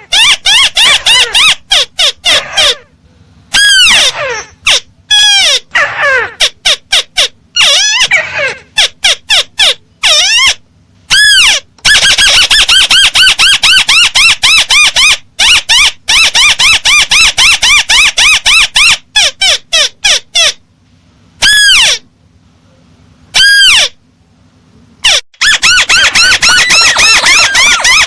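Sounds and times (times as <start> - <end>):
crake calls: 25.0 - 28.0.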